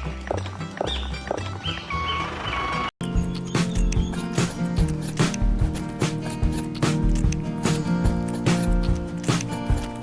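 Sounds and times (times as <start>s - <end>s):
bouncy bass line music: 3.0s - 10.0s.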